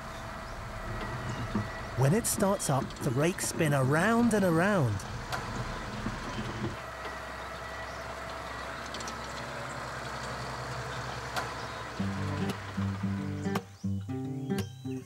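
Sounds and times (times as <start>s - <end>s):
tractor with spinning rake: 0.0s - 13.6s
music: 12.0s - 15.0s.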